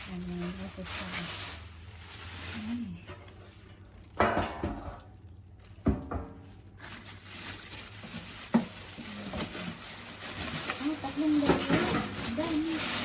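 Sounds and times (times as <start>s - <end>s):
packaging rustling: 0.0s - 4.2s, 4.9s - 13.0s
metal pans clanking: 4.2s - 5.0s, 11.4s - 12.4s.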